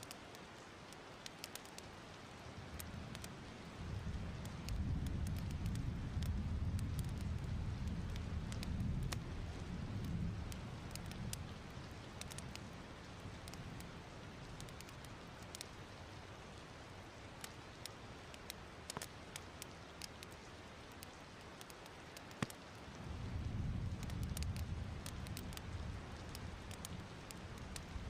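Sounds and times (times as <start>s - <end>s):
soft steady hiss: 0.0s - 28.0s
wood fire crackling: 0.0s - 28.0s.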